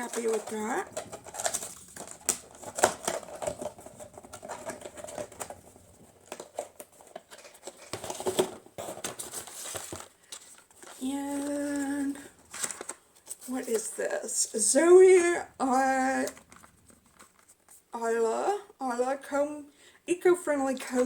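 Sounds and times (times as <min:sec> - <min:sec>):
packaging rustling: 0:00.0 - 0:14.0, 0:15.0 - 0:17.8.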